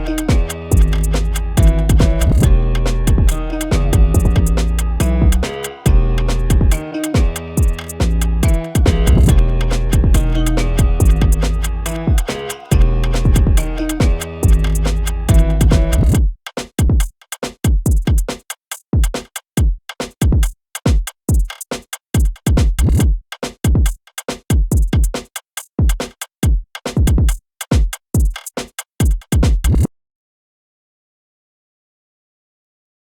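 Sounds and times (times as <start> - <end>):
kick drum hits: 0.0 - 1.0, 1.6 - 11.4, 12.0 - 14.7, 15.3 - 17.1, 22.2 - 25.1, 25.8 - 28.3, 29.0 - 29.9
gliding bass notes: 0.0 - 16.2
hi-hat hits: 0.0 - 29.9.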